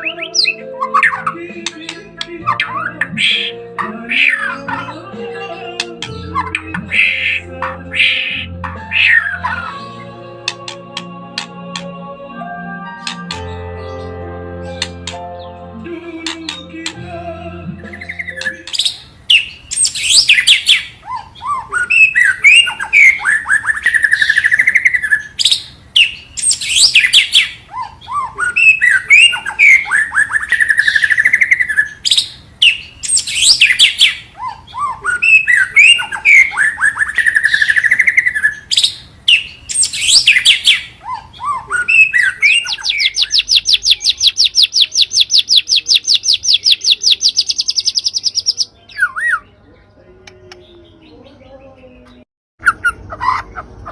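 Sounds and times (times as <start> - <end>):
bird song whistled phrases: 0.0 - 5.0, 6.0 - 10.7, 17.9 - 49.6
fast high bird trill: 0.0 - 10.8, 17.9 - 49.4.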